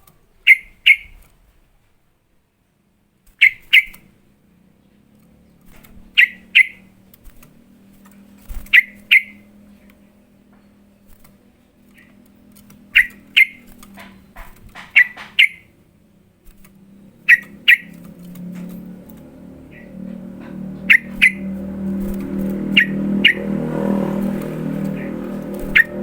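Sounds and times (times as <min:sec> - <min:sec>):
low hum: 0:04.3 - 0:26.0
bulbul sharp paired chirps: 0:17.2 - 0:18.0, 0:20.8 - 0:21.9.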